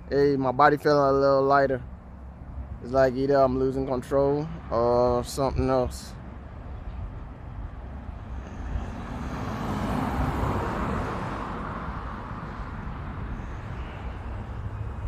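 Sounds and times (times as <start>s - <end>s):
vehicle passing by: 8.0s - 15.0s.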